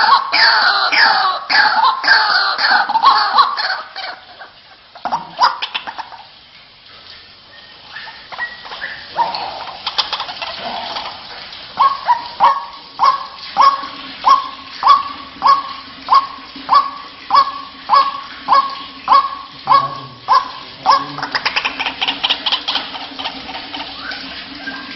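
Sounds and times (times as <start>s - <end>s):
waterhen honking calls: 0.0s - 6.3s, 7.5s - 24.9s.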